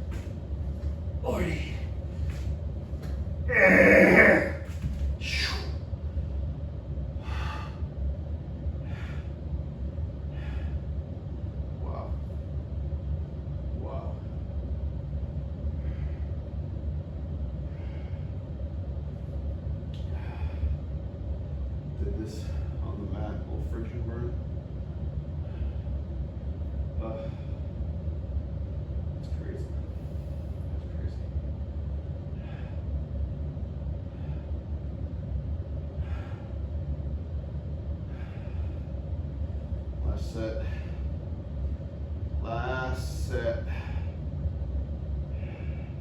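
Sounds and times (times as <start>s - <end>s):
faint steady hum: 0.0s - 46.0s
low background rumble: 0.0s - 46.0s
man breathing: 0.1s - 5.8s, 7.1s - 8.0s, 8.8s - 9.5s, 10.2s - 11.0s, 15.8s - 16.5s, 17.6s - 18.4s, 20.0s - 20.9s, 25.4s - 26.0s, 32.3s - 33.0s, 35.9s - 36.7s, 38.0s - 39.8s, 43.6s - 44.3s, 45.3s - 46.0s.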